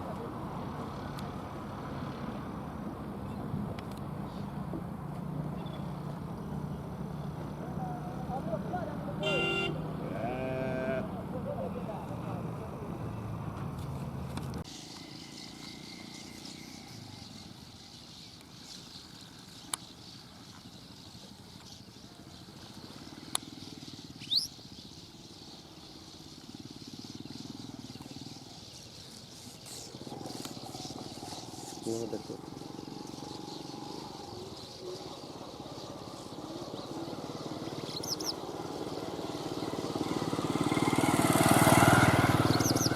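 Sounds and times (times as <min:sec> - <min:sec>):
bird chirping: 0:05.4 - 0:07.9, 0:14.7 - 0:42.9.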